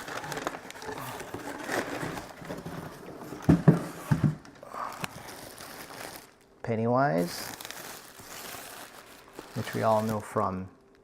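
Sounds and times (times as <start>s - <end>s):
cardboard box rustling: 0.0s - 4.5s.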